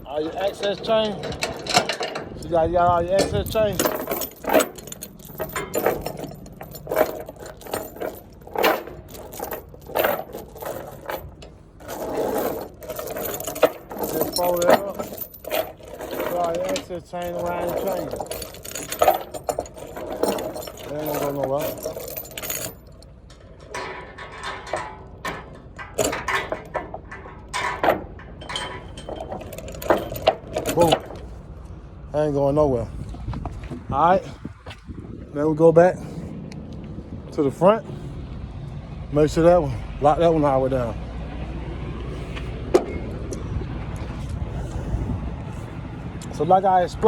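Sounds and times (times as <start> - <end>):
metal chain clinking and rattling: 0.0 - 31.5.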